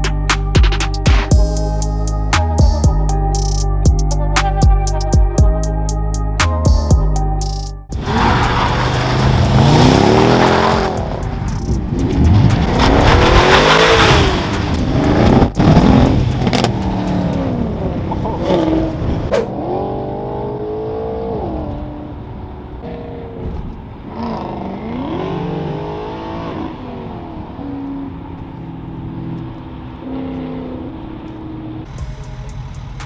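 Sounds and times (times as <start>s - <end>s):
car engine revving: 0.0s - 23.4s.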